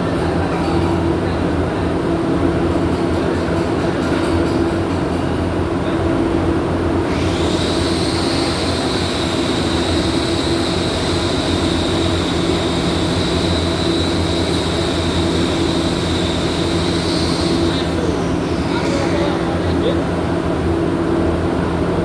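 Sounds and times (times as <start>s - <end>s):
machine high whine: 7.0s - 21.4s.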